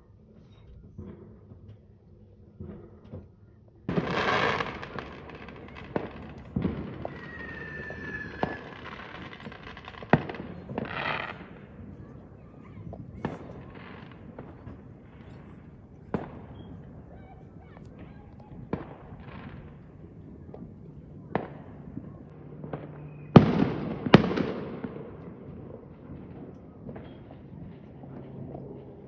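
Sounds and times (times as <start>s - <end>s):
fireworks bangs: 2.6s - 29.0s
falling firework whistle: 3.9s - 9.5s
fireworks crackling bursts: 3.9s - 29.0s.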